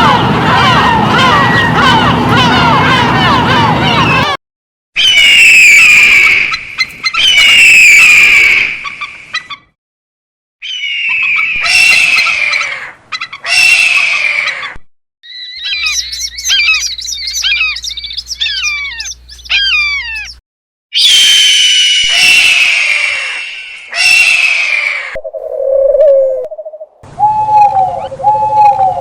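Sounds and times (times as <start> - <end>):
long falling animal calls: 0.0 - 4.4, 10.6 - 20.4, 21.0 - 29.0
rapid high chirps: 15.4 - 20.4.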